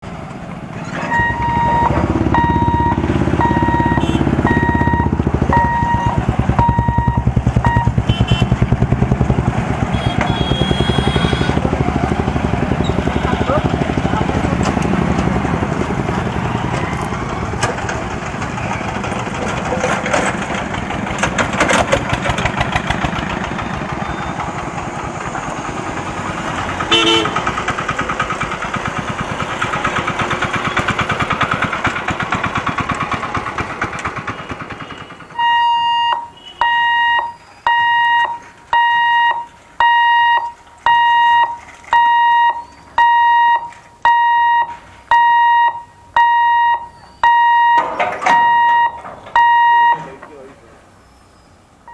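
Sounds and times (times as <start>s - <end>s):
electric train rumbling: 0.0s - 36.0s
short tone: 0.9s - 8.9s, 9.9s - 11.6s, 23.6s - 24.5s
level crossing alarm beeping: 1.0s - 8.0s, 34.5s - 50.1s
train wheel clatter: 16.7s - 35.4s.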